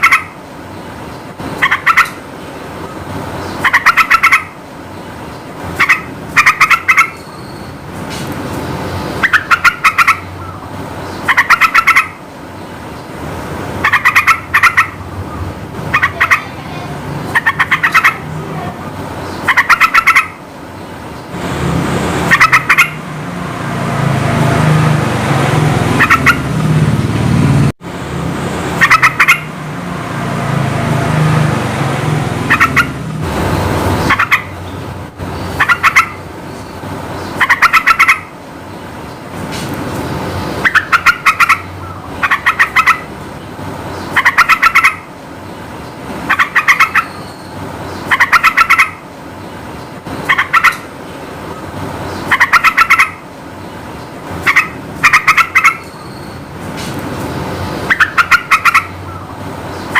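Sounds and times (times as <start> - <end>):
bulbul calling: 0.0 - 0.4, 1.6 - 2.2, 2.8 - 4.6, 5.3 - 7.9, 9.1 - 12.2, 13.8 - 20.4, 22.2 - 23.0, 25.9 - 26.6, 28.8 - 29.6, 32.4 - 33.0, 33.6 - 38.3, 40.5 - 43.1, 43.9 - 45.1, 46.3 - 49.0, 50.2 - 50.9, 51.6 - 53.2, 54.4 - 56.5, 57.6 - 59.9.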